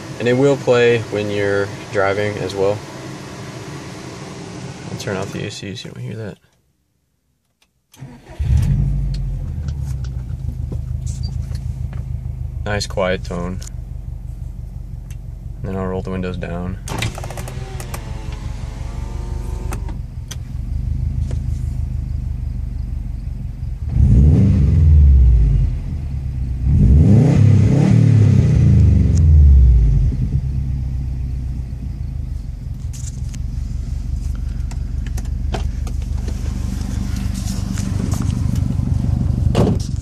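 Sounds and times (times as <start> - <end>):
car engine idling and revving: 0.0 - 5.5, 8.2 - 40.0.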